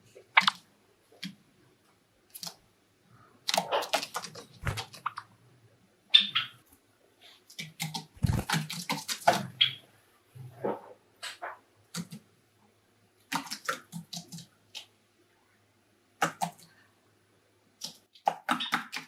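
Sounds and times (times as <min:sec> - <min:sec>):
birds scuffling and clicking: 0:03.5 - 0:05.3, 0:07.5 - 0:09.8, 0:13.3 - 0:14.9.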